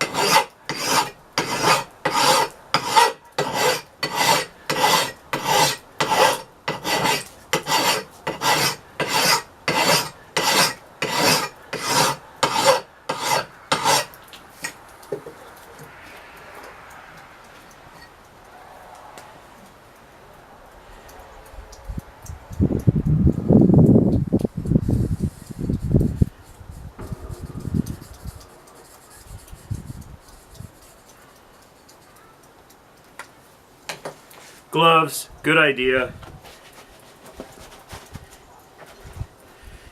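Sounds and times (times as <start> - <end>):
faint rubbing: 0.0 - 14.8, 24.9 - 32.2
file rasping on steel: 0.0 - 14.8.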